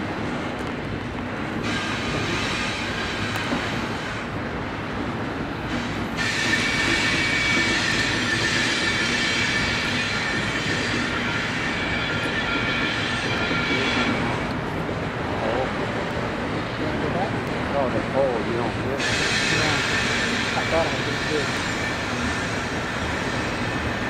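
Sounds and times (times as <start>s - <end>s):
freight train wheels rumbling: 0.0s - 24.0s
high-pitched wheel squeal: 5.8s - 14.4s, 19.0s - 24.0s.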